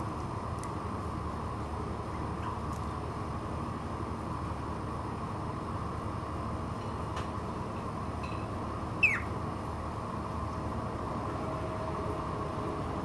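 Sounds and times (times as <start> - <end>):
background hiss and hum: 0.0 - 13.0
faint bird chirps: 9.0 - 9.4.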